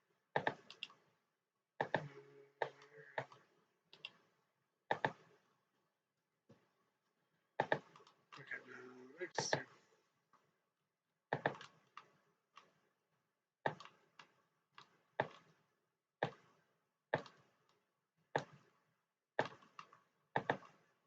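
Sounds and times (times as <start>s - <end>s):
computer mouse buttons clicking: 0.4s - 1.1s, 1.8s - 5.4s, 7.6s - 8.4s, 11.3s - 12.8s, 13.6s - 15.6s, 17.1s - 17.8s, 19.4s - 20.8s.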